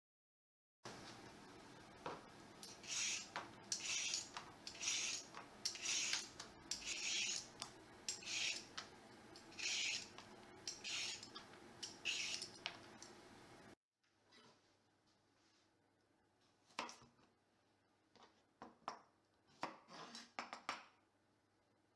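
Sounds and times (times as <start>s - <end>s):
kitchen tool scraping vegetable: 2.6s - 13.1s.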